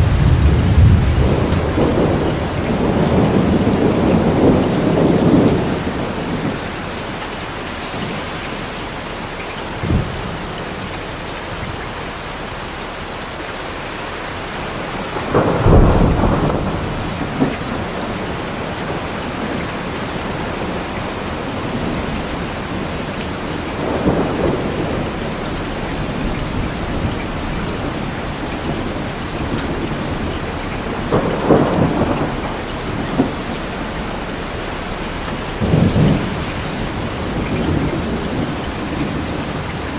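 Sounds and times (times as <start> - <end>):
sharp thunder crack: 0.0 - 6.6, 15.2 - 19.5, 28.7 - 34.7, 35.3 - 39.5
thunder rumbling: 0.0 - 12.6, 14.6 - 39.9
heavy rain: 0.0 - 39.9.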